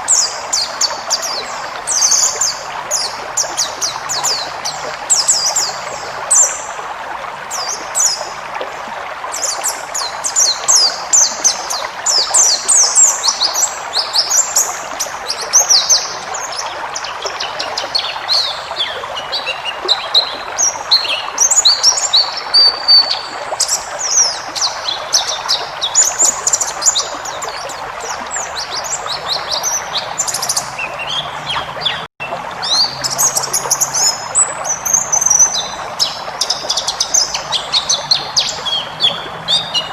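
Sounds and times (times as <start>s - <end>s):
bird twittering song: 0.0s - 6.8s, 9.3s - 39.9s.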